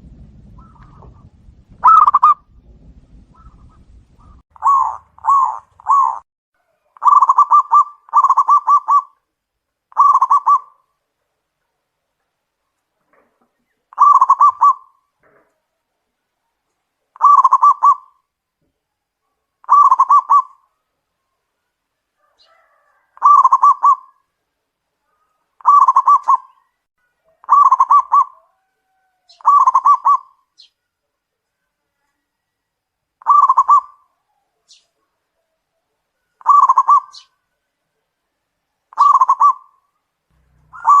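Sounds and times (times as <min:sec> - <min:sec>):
dove cooing: 0:00.6 - 0:02.4, 0:03.4 - 0:06.2, 0:06.8 - 0:09.2, 0:09.9 - 0:10.9, 0:13.9 - 0:15.1, 0:17.2 - 0:18.3, 0:19.6 - 0:20.6, 0:22.2 - 0:24.3, 0:25.6 - 0:30.4, 0:33.2 - 0:34.7, 0:36.4 - 0:37.4, 0:38.9 - 0:39.8, 0:40.6 - 0:41.0.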